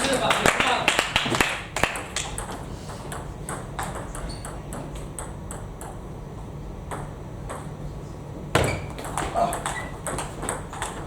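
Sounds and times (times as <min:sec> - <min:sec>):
table tennis ball ticking: 0:09.0 - 0:11.0.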